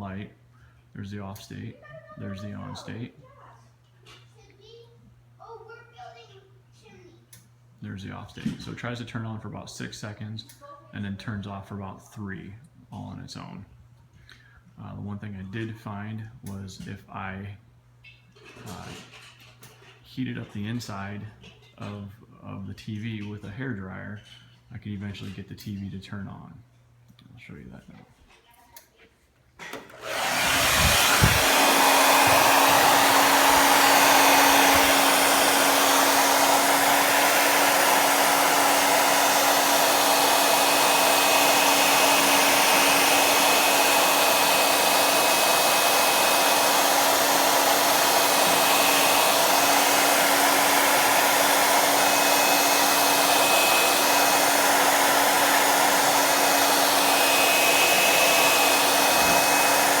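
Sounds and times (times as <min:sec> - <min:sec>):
hair dryer blowing: 0:29.7 - 1:00.0
low motor hum: 0:30.1 - 0:39.4.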